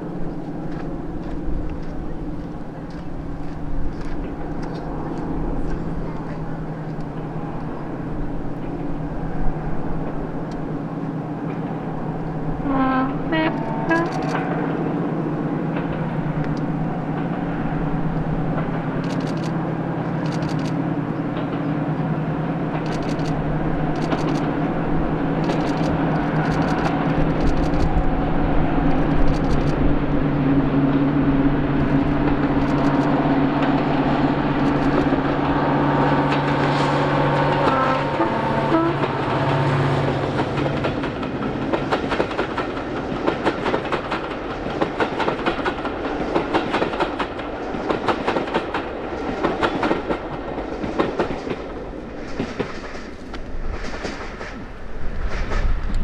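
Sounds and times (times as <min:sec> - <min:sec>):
wheels clicking over rail joints: 0:00.0 - 0:28.2, 0:30.9 - 0:56.0
diesel train engine drone: 0:00.0 - 0:56.0.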